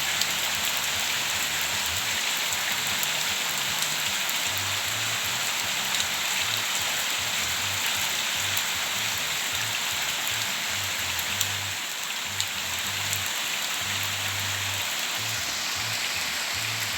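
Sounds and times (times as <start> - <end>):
heavy rain on hard surfaces: 0.0 - 16.9.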